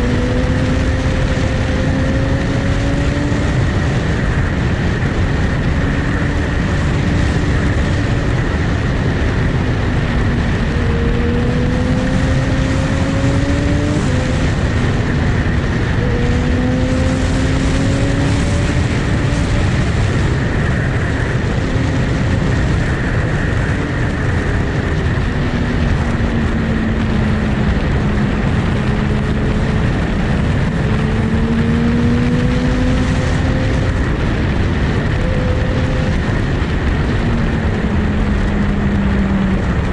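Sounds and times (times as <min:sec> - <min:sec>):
motorcycle engine running: 0:00.0 - 0:39.9
wind noise: 0:00.0 - 0:39.9.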